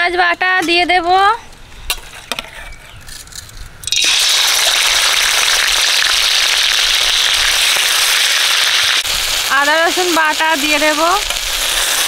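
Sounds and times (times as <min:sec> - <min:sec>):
paste sizzling in hot oil: 0:03.9 - 0:12.0.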